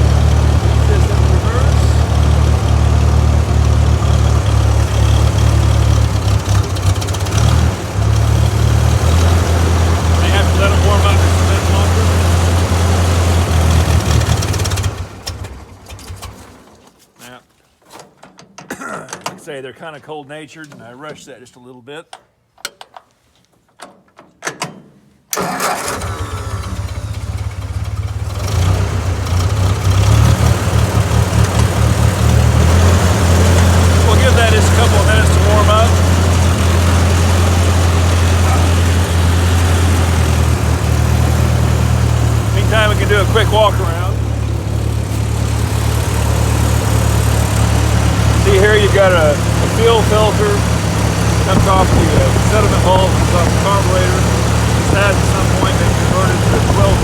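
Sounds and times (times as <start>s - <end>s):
tractor engine chugging: 0.0s - 16.4s, 25.4s - 57.0s.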